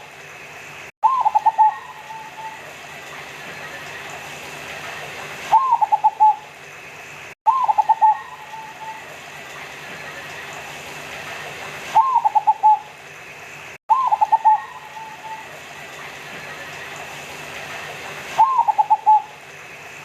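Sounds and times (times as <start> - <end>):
dove cooing: 1.0 - 2.8, 5.5 - 6.4, 7.5 - 9.1, 12.0 - 12.9, 13.9 - 15.6, 18.4 - 19.4.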